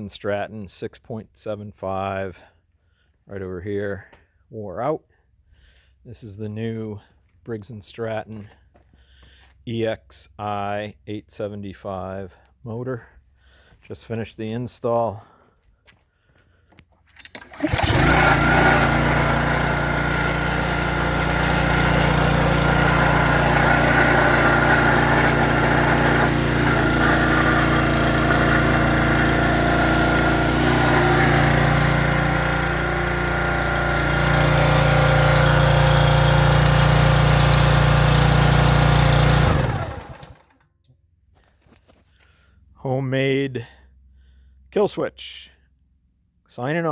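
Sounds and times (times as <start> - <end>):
small engine running: 17.2 - 40.6.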